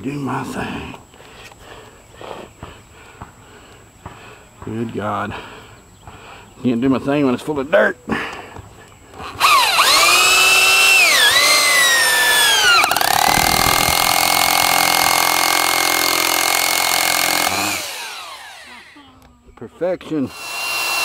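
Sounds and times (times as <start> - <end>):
electric drill motor whining: 9.1 - 19.2, 20.3 - 21.0.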